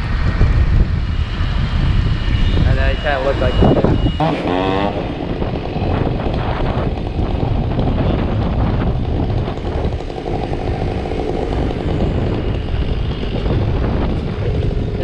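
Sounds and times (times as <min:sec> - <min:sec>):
chainsaw cutting wood: 0:04.2 - 0:07.4.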